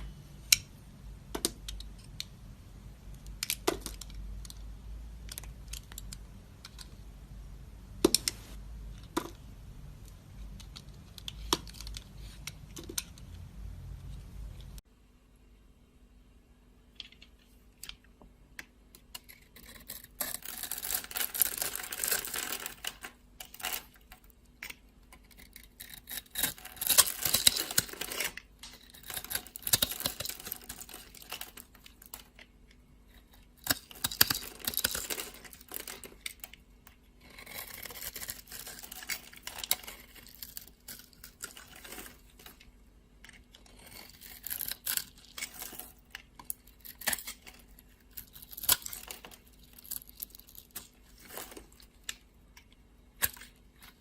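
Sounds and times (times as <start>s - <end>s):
knife cutting dry soap: 24.6s - 32.2s, 33.1s - 42.4s, 43.2s - 51.9s.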